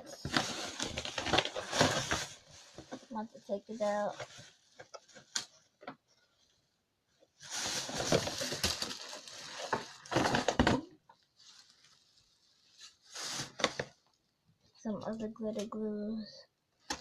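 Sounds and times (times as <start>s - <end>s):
packaging rustling and crinkling: 0.0s - 5.8s, 7.3s - 14.2s.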